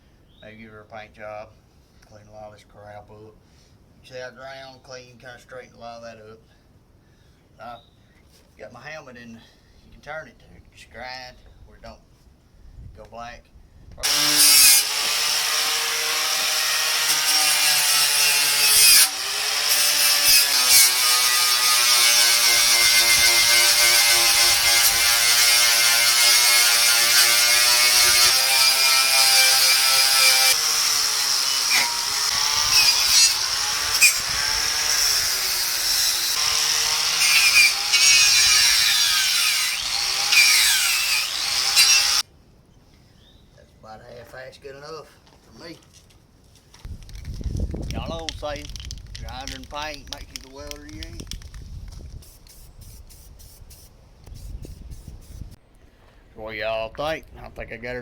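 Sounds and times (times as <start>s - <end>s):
wire wheel grinder scrubbing metal: 14.1s - 42.2s.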